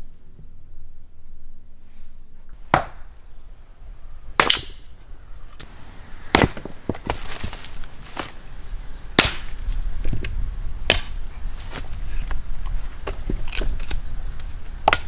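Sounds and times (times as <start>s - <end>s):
axe chopping firewood: 2.6s - 3.4s, 4.3s - 15.0s.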